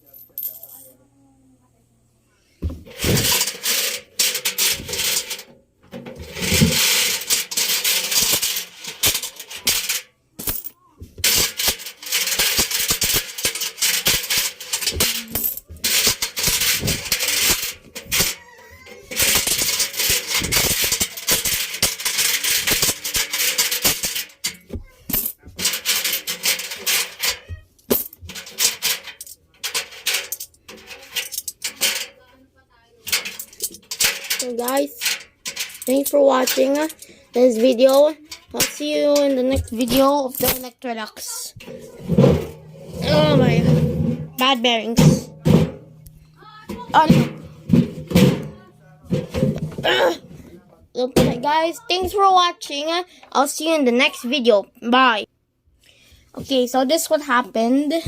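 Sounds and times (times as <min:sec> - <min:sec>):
coins rattling in washing machine drum: 0:02.8 - 0:32.3, 0:33.0 - 0:40.8, 0:46.5 - 0:50.1.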